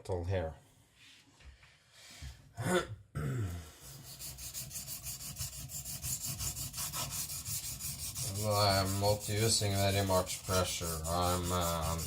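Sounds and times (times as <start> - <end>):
throat clearing: 2.6 - 3.7.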